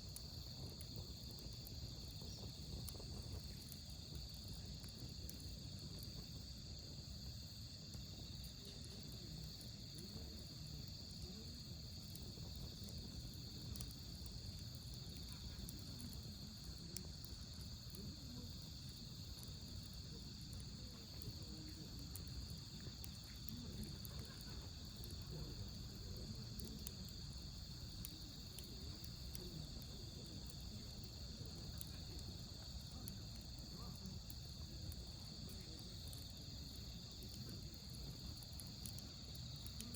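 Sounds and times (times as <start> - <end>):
campfire crackling: 0.0 - 39.9
insects chirping: 0.0 - 39.9.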